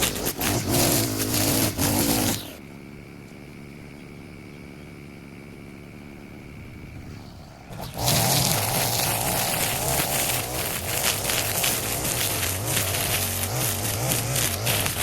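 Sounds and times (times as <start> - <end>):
small petrol engine running: 0.0 - 2.6, 7.0 - 15.0.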